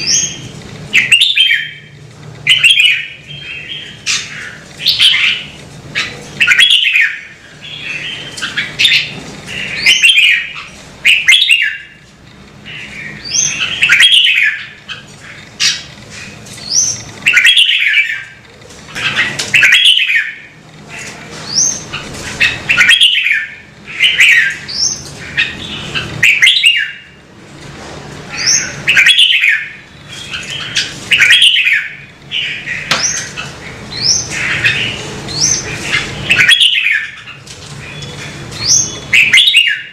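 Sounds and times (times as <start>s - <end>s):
bird singing warbling phrases: 0.0s - 27.2s, 28.3s - 39.9s.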